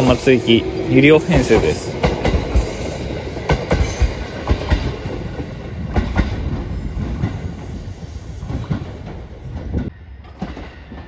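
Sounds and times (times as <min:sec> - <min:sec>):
electric train pulling away: 0:00.0 - 0:04.6
wheels clacking over rail joints: 0:01.4 - 0:07.8.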